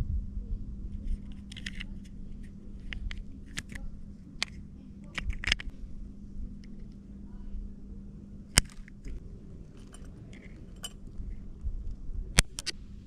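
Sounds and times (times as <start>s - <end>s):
steady low hum: 0.0s - 13.0s
small tools clicking: 2.8s - 5.7s, 8.6s - 11.2s.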